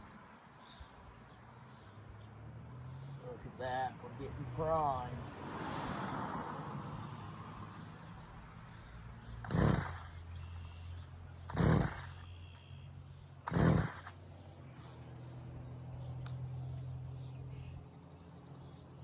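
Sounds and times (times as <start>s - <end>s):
recoil starter cord whir: 9.2s - 10.2s, 11.0s - 12.3s, 13.4s - 14.2s.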